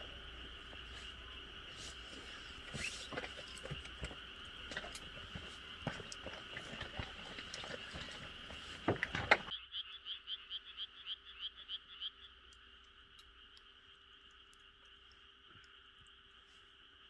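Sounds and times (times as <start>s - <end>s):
wood fire crackling: 0.0s - 9.5s
frog chorus: 0.0s - 17.0s
frog pulsed croak: 9.5s - 17.0s.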